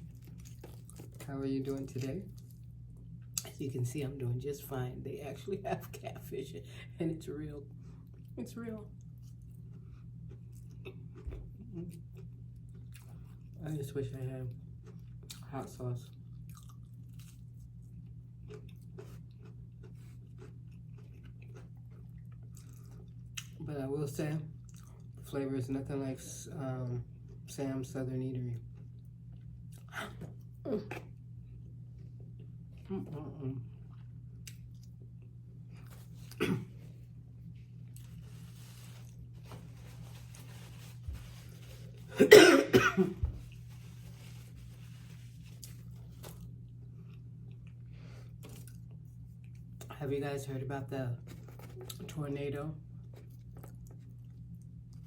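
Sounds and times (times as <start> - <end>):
chewing with crunches: 0.0 - 3.6, 7.8 - 13.8, 14.5 - 23.6, 24.6 - 25.2, 28.6 - 36.4, 44.8 - 49.9, 52.9 - 55.0
low electrical hum: 0.0 - 55.0
person coughing: 36.4 - 36.7, 42.1 - 43.3.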